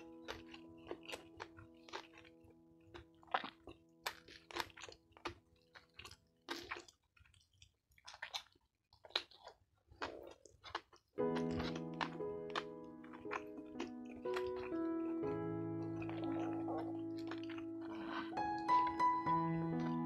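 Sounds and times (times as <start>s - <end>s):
faint background music: 0.0s - 6.7s, 11.2s - 20.0s
wet chewing and mouth smacks: 0.0s - 20.0s.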